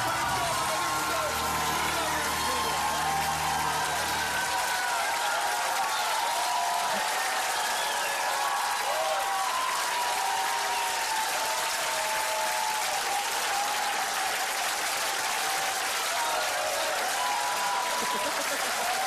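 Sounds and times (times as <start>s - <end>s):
audience applauding: 0.0s - 19.0s
faint voices or whistles: 7.2s - 8.3s.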